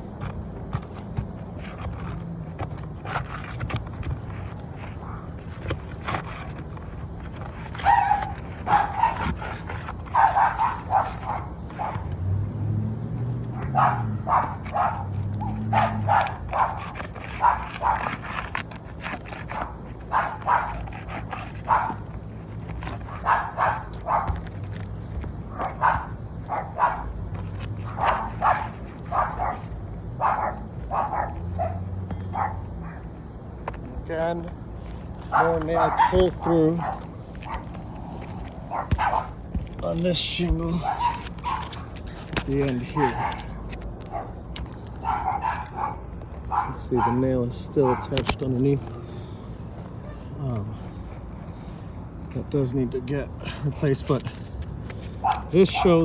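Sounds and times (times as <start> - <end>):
dog barking: 7.7 - 12.1, 13.6 - 18.5, 19.5 - 24.5, 25.5 - 27.2, 27.8 - 33.0, 35.3 - 37.7, 38.7 - 39.4, 40.8 - 41.9, 42.6 - 44.4, 45.0 - 48.2, 55.2 - 56.0.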